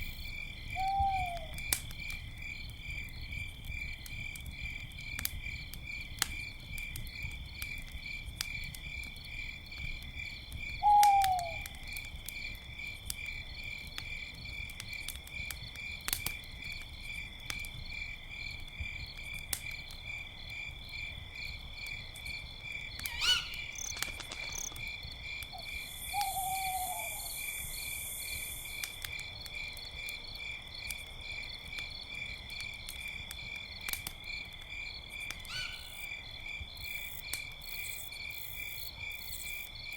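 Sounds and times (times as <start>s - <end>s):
campfire crackling: 0.0s - 39.9s
crickets chirping: 0.0s - 39.9s
owl call: 0.8s - 1.6s, 10.8s - 11.8s, 23.1s - 23.9s, 25.6s - 27.5s, 35.5s - 35.9s.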